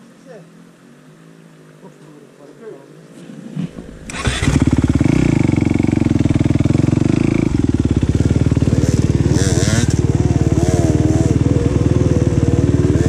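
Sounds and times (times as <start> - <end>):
motorcycle engine running: 4.0 - 13.0.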